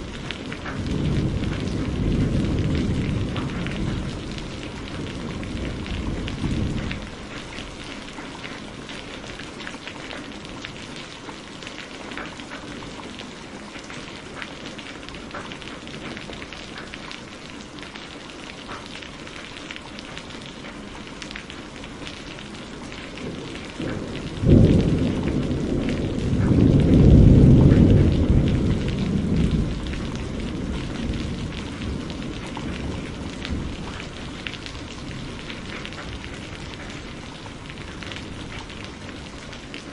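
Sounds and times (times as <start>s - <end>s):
thunder rumbling: 0.0s - 9.6s, 22.3s - 39.9s
steady rain pattering: 0.0s - 39.9s.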